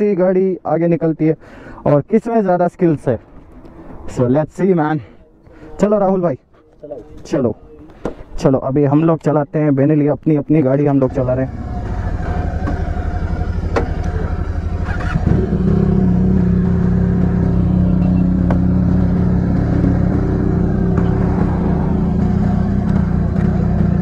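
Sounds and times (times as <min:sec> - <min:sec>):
motorcycle engine running: 0:11.1 - 0:24.0.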